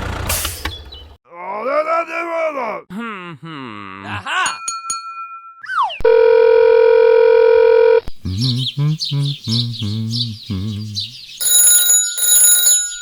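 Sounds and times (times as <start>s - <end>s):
low voice-like blips: 8.1s - 11.0s.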